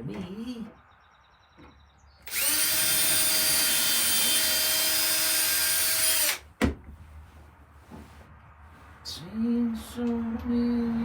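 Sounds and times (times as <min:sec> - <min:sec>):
electric drill motor spinning: 0:02.2 - 0:06.4.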